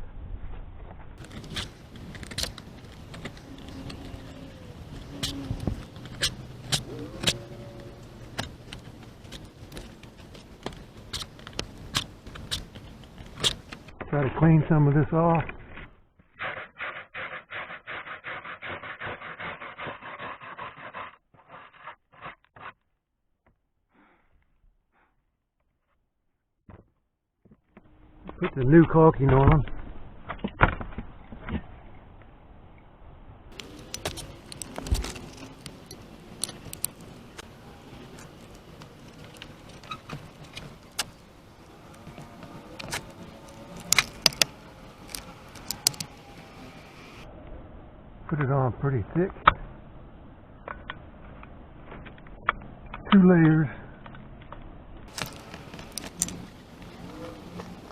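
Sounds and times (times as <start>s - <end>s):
caulking being scraped off: 1.2s - 13.8s, 42.0s - 46.2s
faint handling noise: 33.6s - 46.2s.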